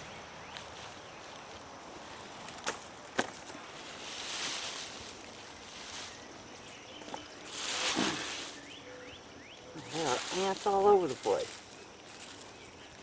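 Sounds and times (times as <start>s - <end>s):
hands digging through soil: 2.2s - 6.4s, 7.0s - 8.7s, 9.8s - 12.6s.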